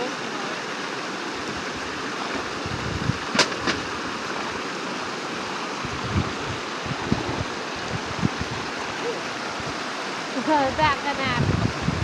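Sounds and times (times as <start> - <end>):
rush of high water: 0.0 - 12.0.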